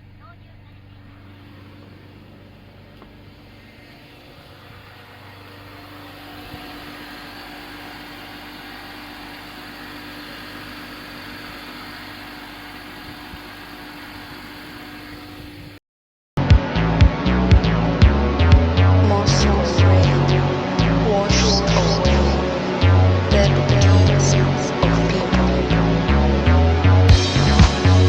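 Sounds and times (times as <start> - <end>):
vehicle engine idling: 0.0 - 13.6.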